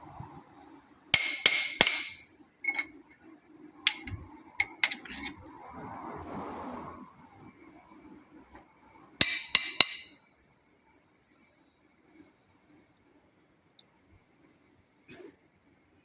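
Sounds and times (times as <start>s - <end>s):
metal tools clinking: 1.2s - 3.0s, 3.9s - 5.4s.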